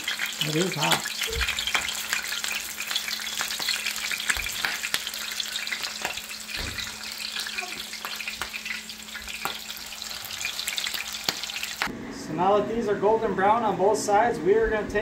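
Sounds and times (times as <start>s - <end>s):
fish cakes sizzling in oil: 0.0s - 11.9s.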